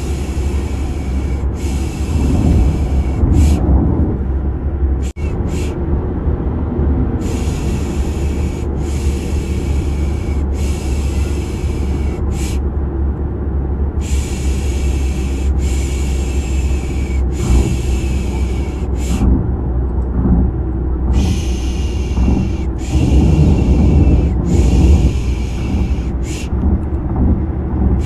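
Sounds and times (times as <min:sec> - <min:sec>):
shushing hiss: 0:00.0 - 0:03.6, 0:05.0 - 0:05.8, 0:07.2 - 0:12.6, 0:14.0 - 0:19.3, 0:21.1 - 0:26.5
car engine rumble: 0:00.0 - 0:28.0.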